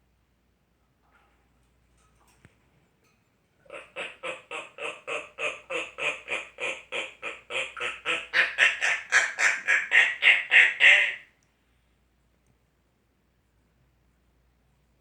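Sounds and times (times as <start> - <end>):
parrot calling: 3.7 - 11.3.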